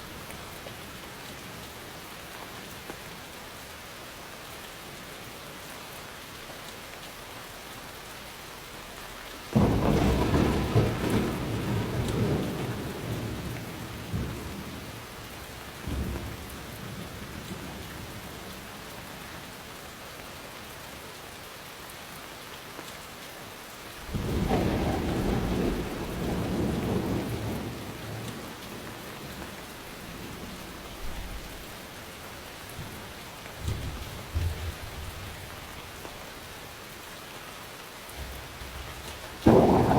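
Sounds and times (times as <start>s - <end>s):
steady rainfall: 0.0s - 39.9s
thunder cracking and rumbling: 9.6s - 18.7s, 24.0s - 31.9s, 32.5s - 36.0s, 38.2s - 39.9s.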